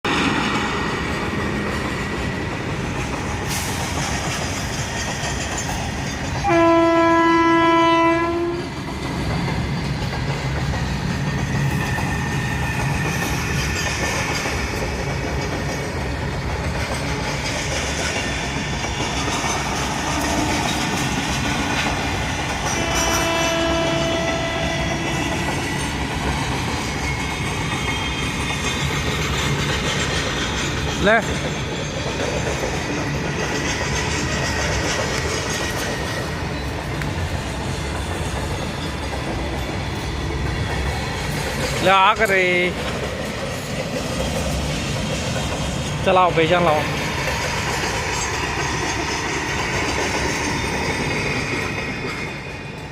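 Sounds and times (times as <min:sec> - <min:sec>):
train wheels rumbling and clattering: 0:00.0 - 0:52.9
train horn: 0:06.4 - 0:08.7, 0:22.7 - 0:25.3.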